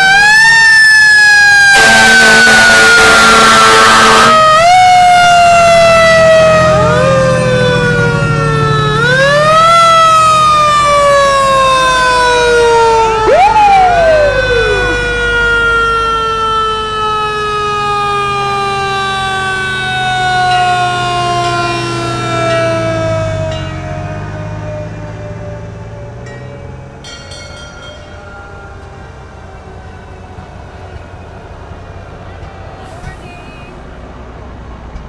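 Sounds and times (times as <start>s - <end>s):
fire engine sirens wailing: 0.0s - 34.9s.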